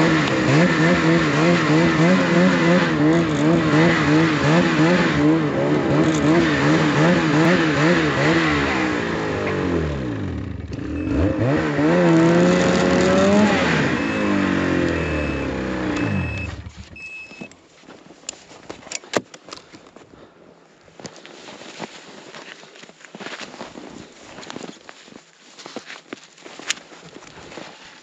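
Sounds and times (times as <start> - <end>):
snowmobile engine revving: 0.0 - 16.9
light crunches and clicks: 20.8 - 28.0.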